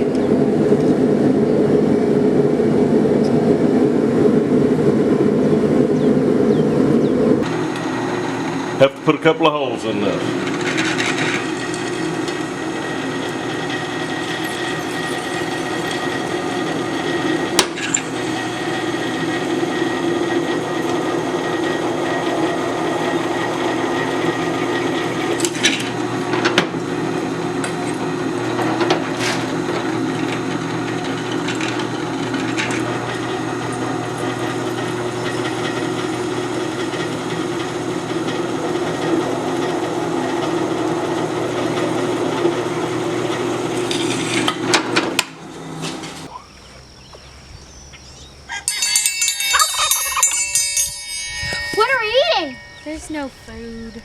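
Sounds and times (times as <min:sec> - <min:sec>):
power drill boring through steel: 0:07.4 - 0:46.3.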